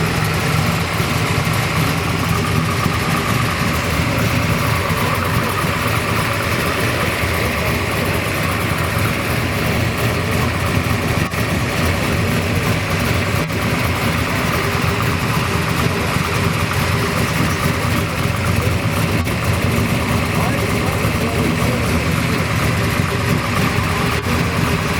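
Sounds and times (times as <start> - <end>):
car engine idling: 0.0 - 24.9.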